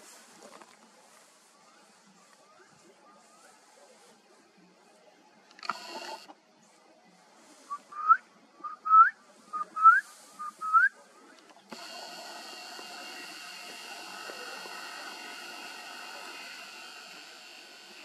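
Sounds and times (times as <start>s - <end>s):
steady hiss and hum: 0.0s - 18.0s
bird whistling: 7.7s - 11.0s.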